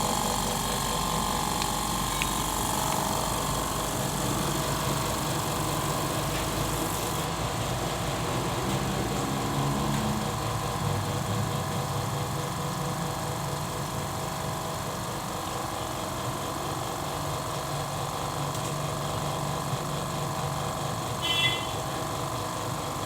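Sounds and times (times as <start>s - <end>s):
air compressor running: 0.0s - 23.0s.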